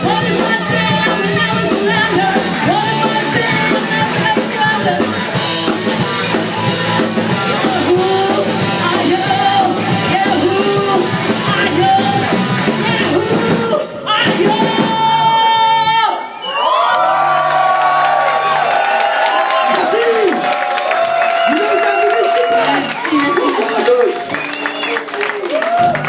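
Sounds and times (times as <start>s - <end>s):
person singing: 0.0s - 5.4s, 7.3s - 16.2s
rock band playing live: 0.0s - 16.2s, 19.7s - 26.0s.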